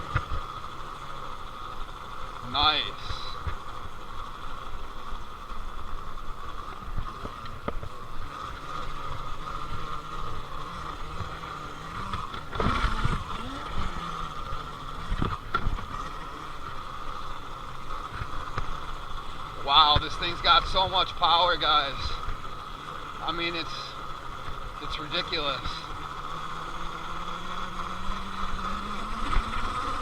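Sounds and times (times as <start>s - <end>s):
electric motor whine: 0.0s - 30.0s.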